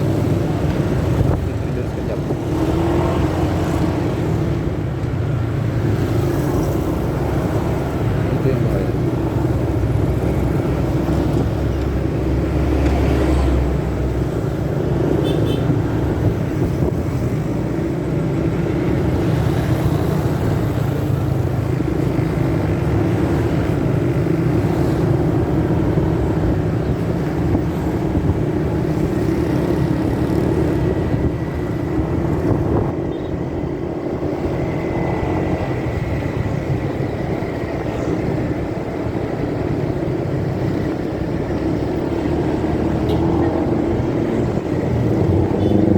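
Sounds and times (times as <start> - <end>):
muffled motorcycle riding noise: 0.0 - 45.9.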